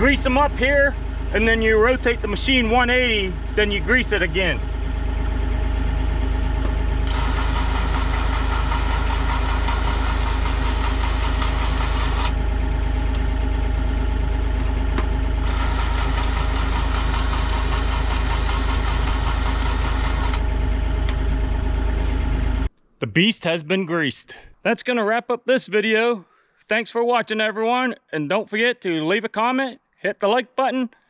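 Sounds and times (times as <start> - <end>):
engine idling: 0.0 - 22.7
grease gun pulsing whine: 0.0 - 22.7.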